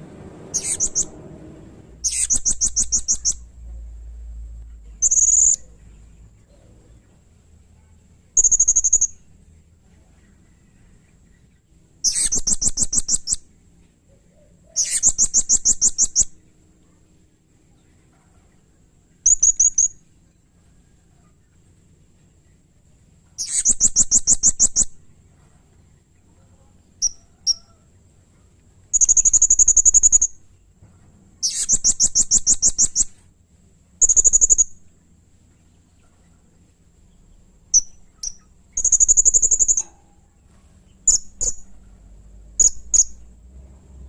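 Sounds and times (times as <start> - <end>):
parrot trilling: 0.5 - 1.2, 2.0 - 3.4, 12.0 - 13.4
sharp bird chirps: 0.5 - 1.2, 2.0 - 3.5, 4.8 - 6.7, 8.4 - 9.4, 11.4 - 13.6, 14.7 - 16.5, 19.2 - 20.1, 23.4 - 25.1, 27.0 - 27.8, 28.9 - 30.6, 31.4 - 33.2, 34.0 - 34.8, 37.1 - 40.1, 40.9 - 41.8, 42.5 - 43.4.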